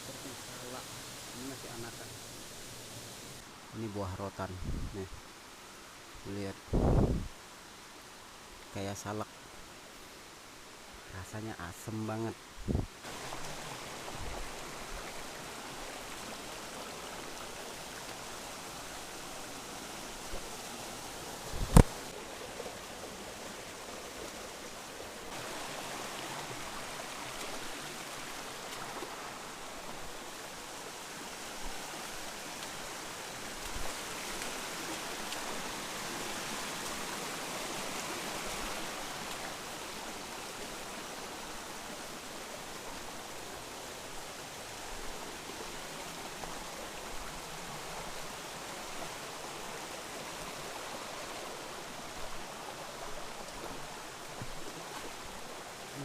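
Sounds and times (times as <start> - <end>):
river rushing over rocks: 12.3 - 56.0.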